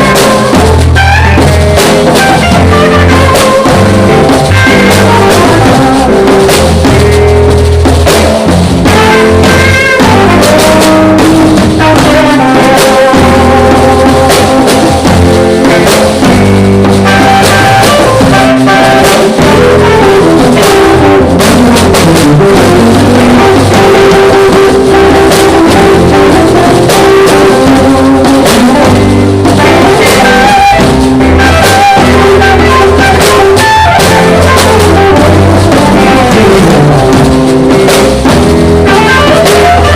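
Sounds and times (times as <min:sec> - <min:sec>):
live band jamming: 0:00.0 - 0:39.9.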